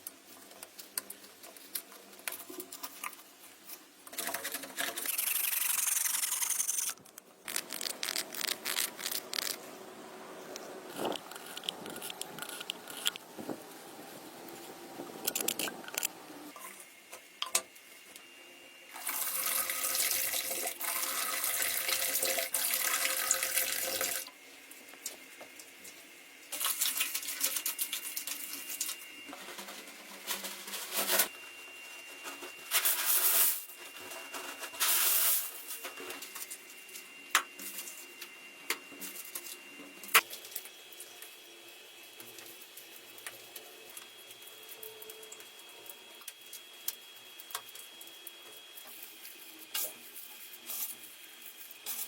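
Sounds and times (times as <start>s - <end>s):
water pouring: 19.0s - 24.3s.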